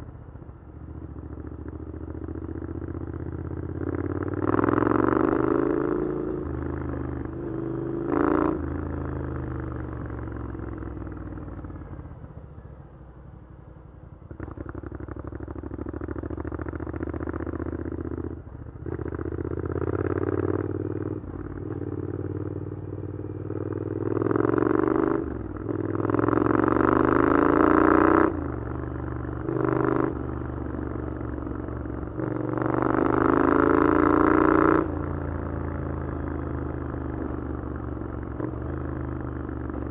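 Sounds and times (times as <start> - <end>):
motorcycle engine accelerating: 0.0 - 12.8, 14.2 - 39.9.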